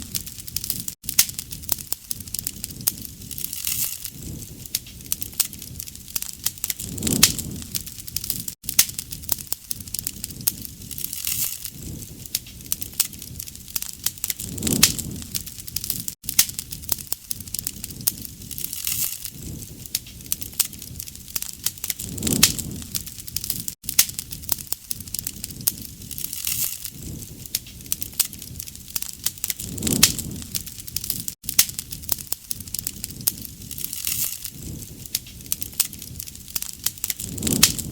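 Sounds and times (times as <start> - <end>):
campfire crackling and popping: 0.0 - 37.9
low rush of flame: 0.0 - 37.9.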